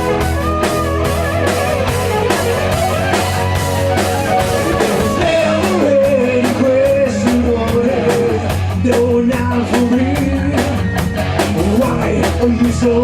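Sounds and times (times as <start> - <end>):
lead guitar melody: 0.0 - 8.5
bass: 0.0 - 13.0
drum-kit beat: 0.0 - 13.0
electric guitars: 0.0 - 13.0.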